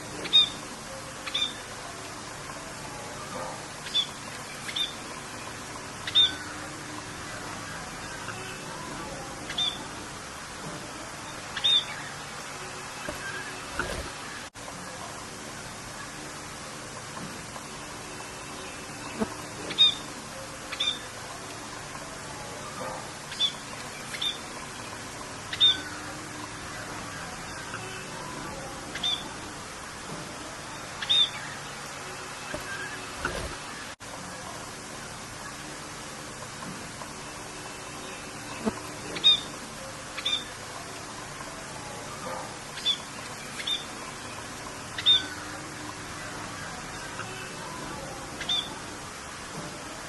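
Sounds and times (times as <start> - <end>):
rain hissing: 0.0 - 50.0
bird chirping: 0.1 - 1.7, 3.4 - 7.1, 8.1 - 9.9, 11.5 - 12.2, 18.5 - 21.1, 22.6 - 29.4, 31.0 - 31.6, 37.8 - 40.6, 41.9 - 45.7, 46.7 - 48.8.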